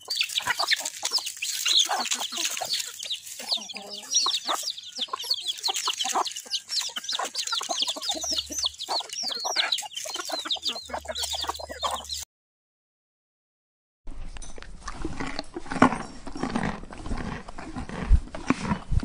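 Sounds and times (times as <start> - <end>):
chickens cheeping and clucking: 0.0 - 12.3.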